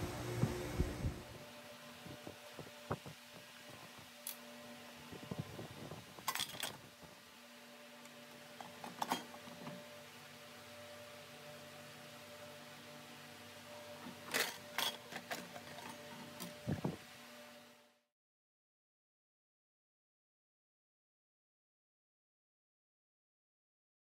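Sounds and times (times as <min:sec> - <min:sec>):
low hum: 0:00.0 - 0:01.5.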